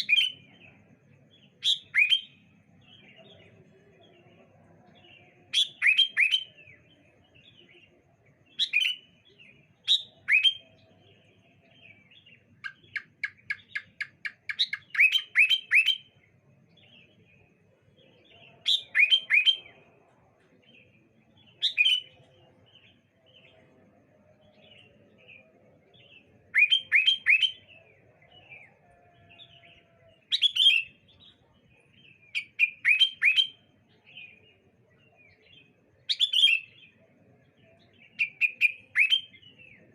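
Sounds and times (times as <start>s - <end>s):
birds calling whistled notes: 0.0s - 0.8s, 1.4s - 3.2s, 5.5s - 7.0s, 8.5s - 16.2s, 18.0s - 19.8s, 20.8s - 23.6s, 24.6s - 34.5s, 35.2s - 37.0s, 37.6s - 39.9s.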